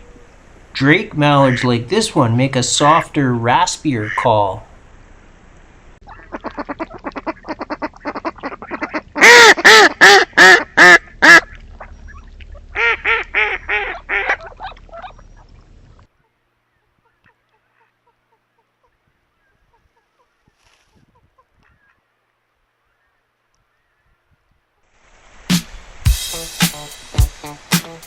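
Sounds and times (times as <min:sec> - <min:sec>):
mallard quacking: 0:04.0 - 0:04.5, 0:06.0 - 0:11.5, 0:12.8 - 0:15.2.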